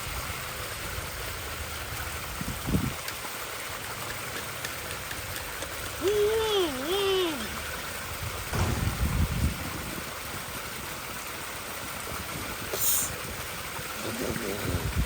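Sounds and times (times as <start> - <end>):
running water rushing: 0.0 - 15.0
short low thud: 8.5 - 10.1.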